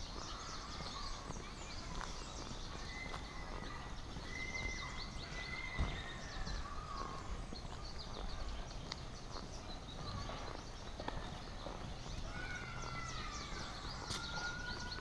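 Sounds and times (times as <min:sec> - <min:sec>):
birds chirping and singing: 0:00.0 - 0:15.0
thump: 0:05.8 - 0:06.0.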